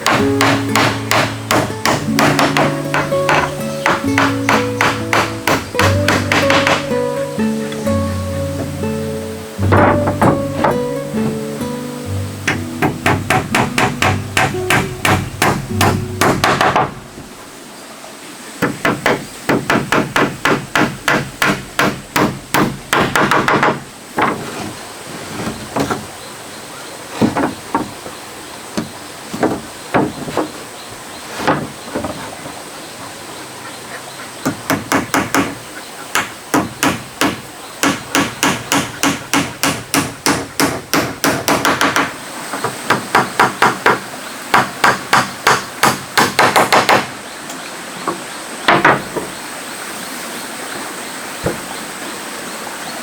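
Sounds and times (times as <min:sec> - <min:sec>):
hammer blows on wood: 0:00.0 - 0:07.0, 0:12.4 - 0:17.0.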